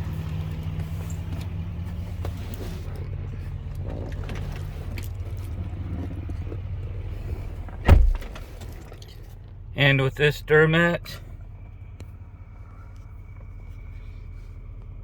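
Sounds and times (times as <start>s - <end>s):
diesel engine idling: 0.0s - 15.0s
heavy thump: 7.7s - 8.5s.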